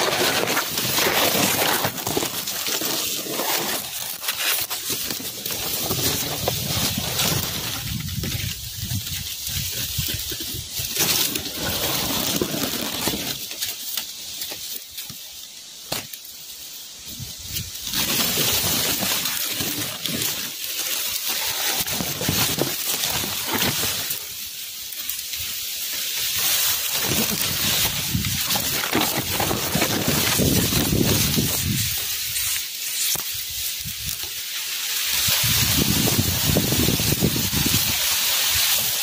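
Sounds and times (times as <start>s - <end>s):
wind rushing through foliage: 0.0s - 39.0s
strong wind gusting: 35.4s - 37.9s.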